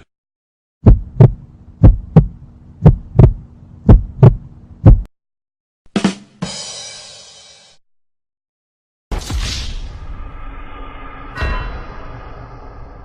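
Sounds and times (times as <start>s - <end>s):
heartbeat thumps: 0.8s - 5.1s.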